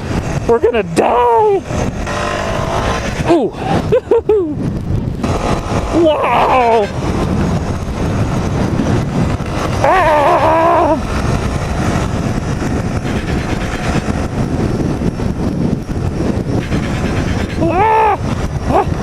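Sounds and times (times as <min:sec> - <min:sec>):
atv engine running: 0:00.0 - 0:19.0
wind buffeting microphone: 0:00.0 - 0:19.0
rider shouting: 0:03.0 - 0:03.9, 0:05.9 - 0:07.1, 0:09.8 - 0:11.1, 0:16.7 - 0:19.0.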